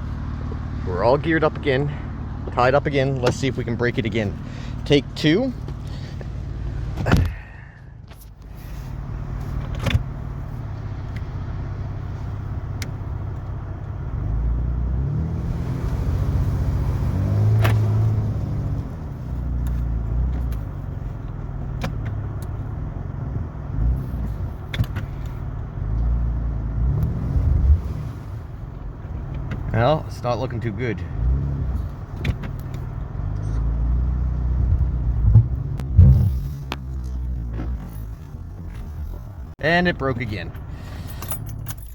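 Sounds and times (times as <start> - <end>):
car engine revving under load: 8.4 - 39.6.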